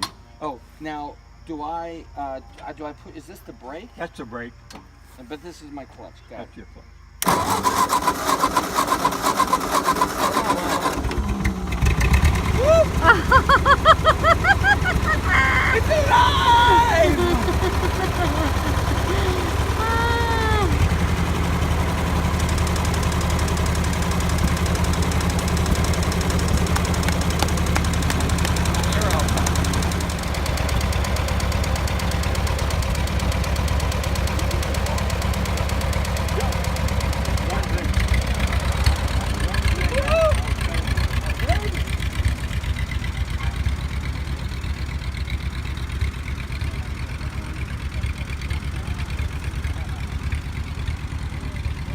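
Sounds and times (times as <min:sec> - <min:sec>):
tractor engine running: 0:07.2 - 0:51.9.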